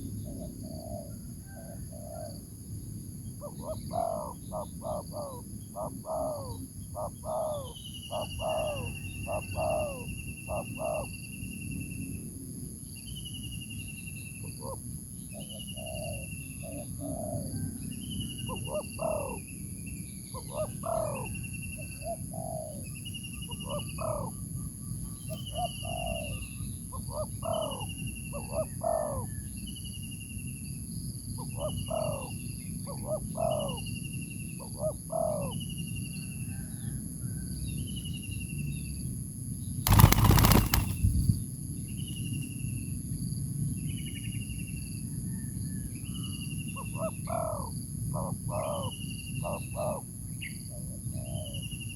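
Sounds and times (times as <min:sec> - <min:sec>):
dove cooing: 0:03.4 - 0:11.1, 0:15.8 - 0:17.6, 0:18.5 - 0:19.4, 0:20.4 - 0:22.8, 0:23.6 - 0:24.4, 0:25.5 - 0:26.4, 0:39.9 - 0:41.0.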